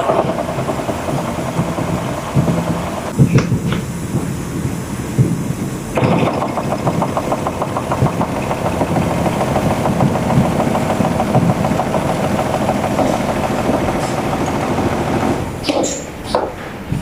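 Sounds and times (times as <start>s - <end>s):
machine running rapid rhythm: 0.0s - 15.6s.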